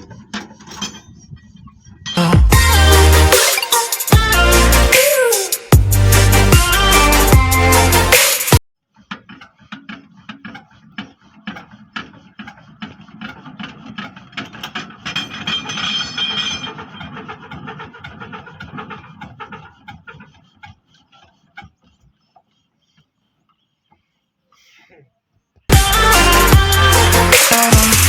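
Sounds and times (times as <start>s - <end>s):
tractor diesel engine knocking: 16.7s - 21.4s.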